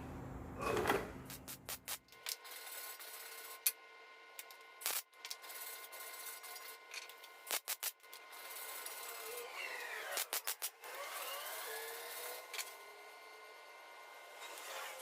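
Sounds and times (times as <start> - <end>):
welding arc buzzing hiss: 1.2 - 10.9
welding pops and crackles: 1.3 - 2.2, 4.8 - 5.4, 7.5 - 8.0, 10.2 - 10.8.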